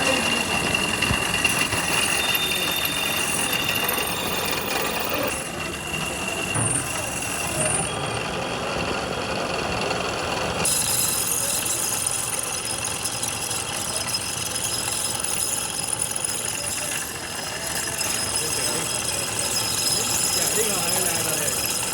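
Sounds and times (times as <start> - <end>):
workshop machinery running: 0.0 - 21.9.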